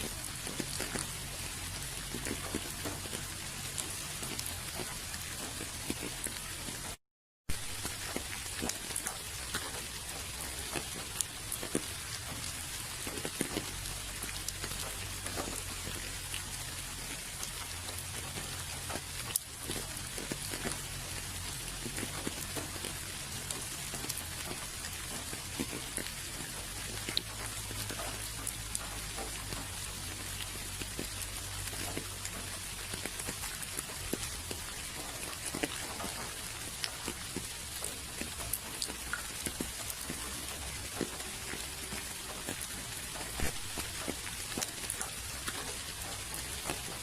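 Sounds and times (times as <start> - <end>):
raindrops ticking: 0.0 - 47.0
steady rain hiss: 0.0 - 47.0.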